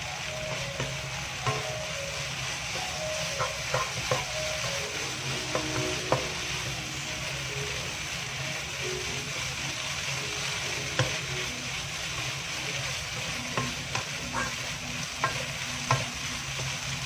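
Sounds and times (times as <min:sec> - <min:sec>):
food sizzling in a pan: 0:00.0 - 0:17.0
spatula knocking on pan: 0:00.8 - 0:01.7, 0:03.2 - 0:04.9, 0:05.5 - 0:06.4, 0:13.5 - 0:14.6.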